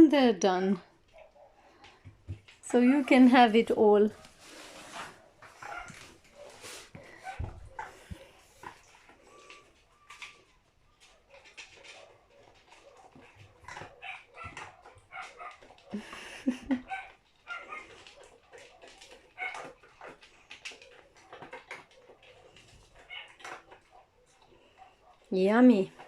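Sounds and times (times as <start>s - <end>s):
dog chewing and crunching food: 0.6s - 26.0s
dog vocalization: 5.2s - 25.3s.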